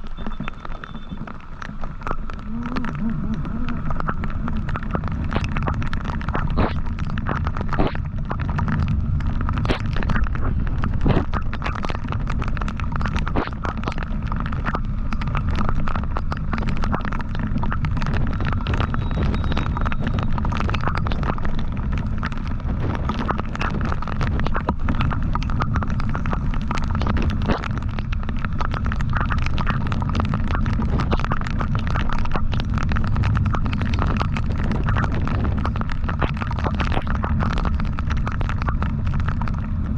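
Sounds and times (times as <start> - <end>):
wind buffeting microphone: 17.3 - 31.9, 32.5 - 39.9.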